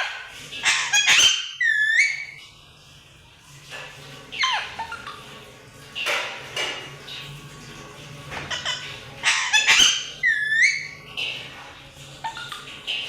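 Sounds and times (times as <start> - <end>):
parrot rattling call: 0.0 - 2.4, 4.3 - 5.3, 8.5 - 11.1, 12.2 - 12.8
parrot chirps and squawks: 0.0 - 2.6, 4.3 - 5.4, 8.5 - 11.5, 12.1 - 13.0.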